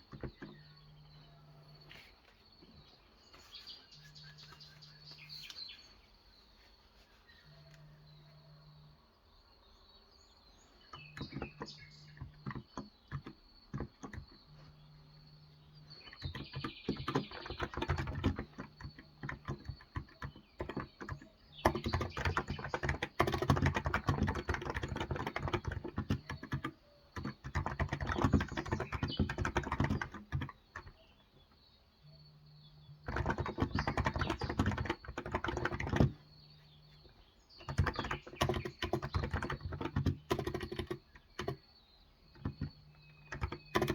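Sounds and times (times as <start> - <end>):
keyboard typing: 0.0 - 2.9, 10.9 - 31.2, 32.8 - 43.9.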